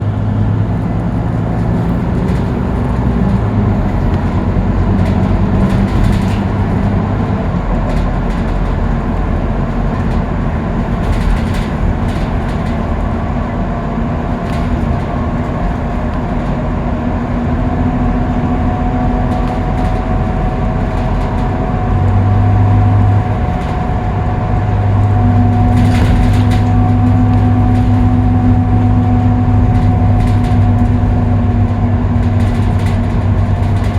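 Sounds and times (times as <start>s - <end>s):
bus diesel engine running: 0.0s - 33.9s
road noise: 0.0s - 33.9s
light rattles: 0.1s - 33.9s.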